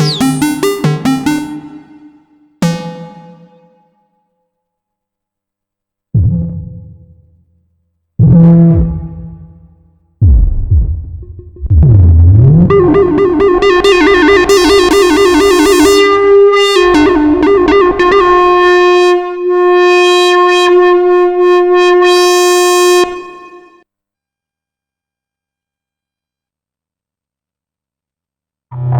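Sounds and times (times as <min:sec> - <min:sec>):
synthesizer lead line: 0:00.0 - 0:03.9, 0:10.3 - 0:23.8.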